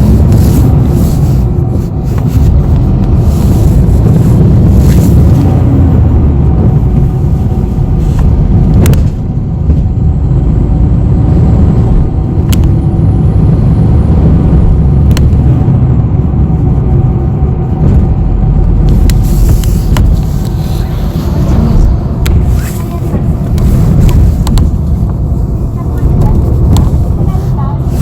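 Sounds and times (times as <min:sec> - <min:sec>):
bus engine rumble: 0:00.0 - 0:28.0.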